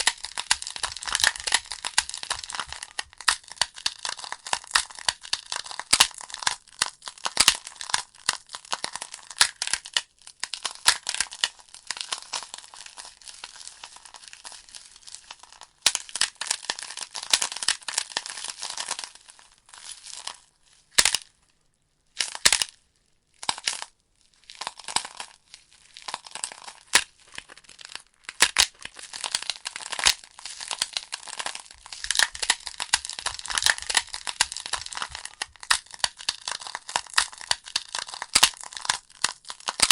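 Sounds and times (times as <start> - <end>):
burning logs crackling and popping: 0.0 - 8.5, 28.3 - 39.9.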